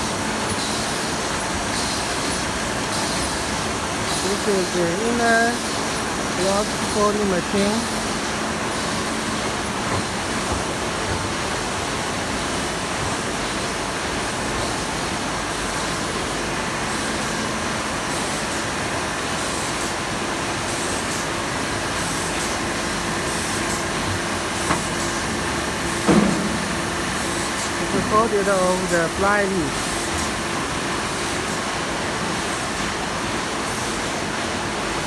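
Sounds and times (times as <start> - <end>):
folding machine running: 0.0 - 12.3, 22.6 - 30.8.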